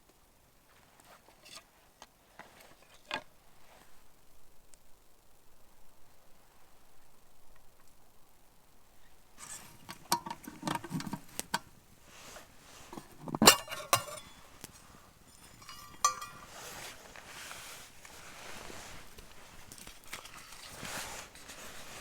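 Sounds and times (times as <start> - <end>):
metal cookware clinking: 9.4 - 11.7, 12.9 - 16.9.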